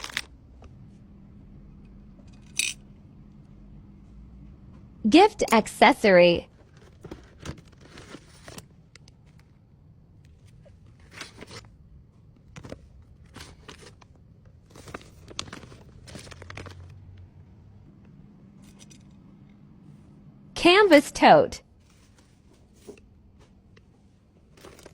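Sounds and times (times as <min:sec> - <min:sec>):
packaging rustling and scraping: 0:06.5 - 0:09.5, 0:10.4 - 0:11.8, 0:12.6 - 0:17.1.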